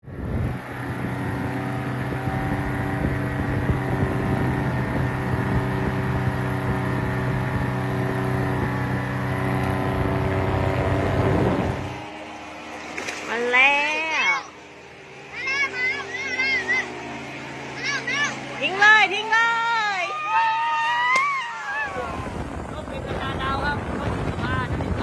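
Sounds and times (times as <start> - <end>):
wind rumbling on microphone: 0.0 - 12.0, 21.8 - 25.0
engine and propeller running: 0.0 - 25.0.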